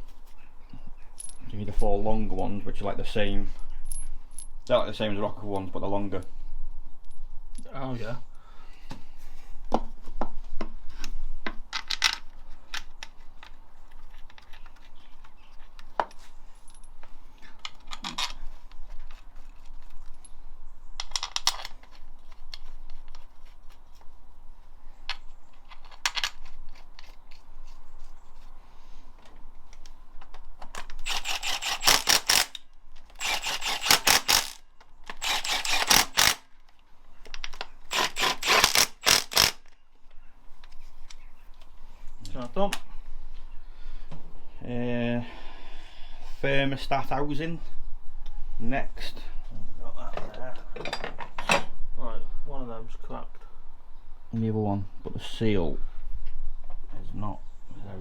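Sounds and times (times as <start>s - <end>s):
rapid ratchet clicking: 31.0s - 32.6s, 33.2s - 36.4s, 37.9s - 39.6s.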